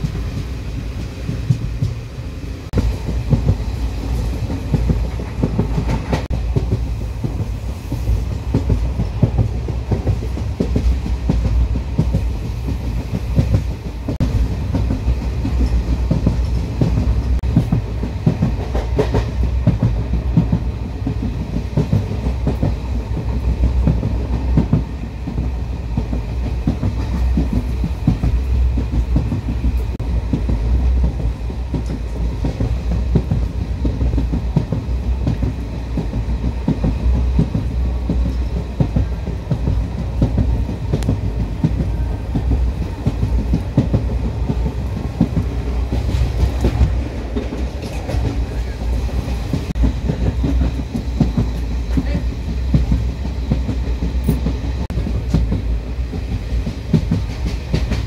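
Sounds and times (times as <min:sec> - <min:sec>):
train wheels clickety-clack: 0:00.0 - 0:58.0.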